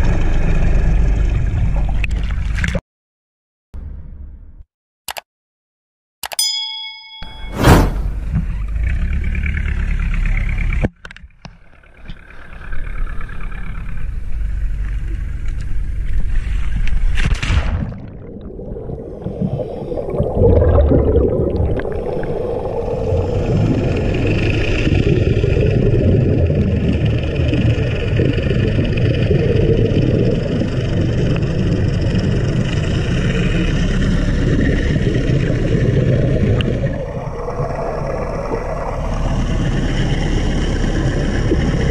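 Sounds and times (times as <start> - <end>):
underwater boat engine rumble: 0.0 - 2.7, 8.1 - 17.2, 18.0 - 41.9
diver breathing bubbles: 18.4 - 27.2.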